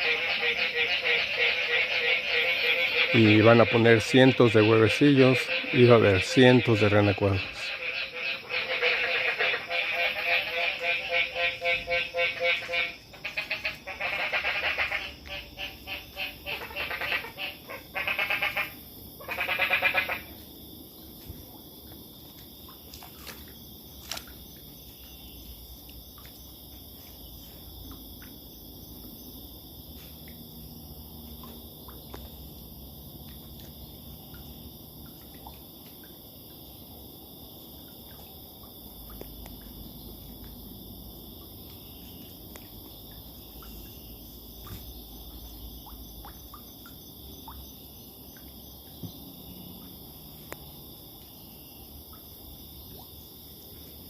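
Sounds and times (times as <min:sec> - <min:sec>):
frogs calling: 0:00.0 - 0:54.0
insects trilling: 0:00.0 - 0:54.0.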